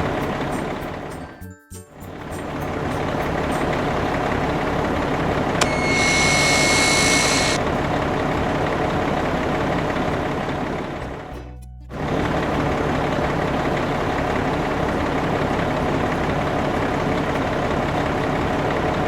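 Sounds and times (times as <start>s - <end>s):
high-pitched whine and hiss: 5.6s - 7.6s.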